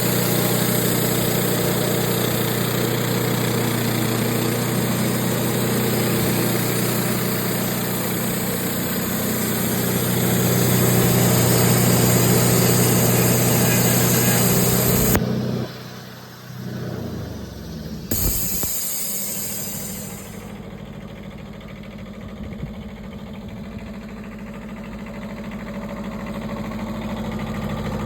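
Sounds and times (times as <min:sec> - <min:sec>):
sawmill motor humming: 0:00.0 - 0:20.9.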